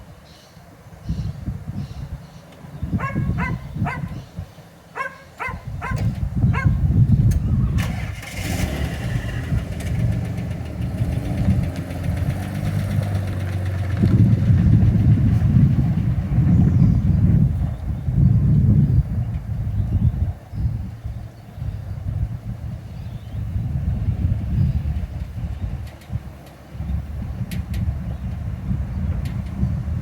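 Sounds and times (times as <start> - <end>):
truck engine cranking and running: 7.2 - 17.8.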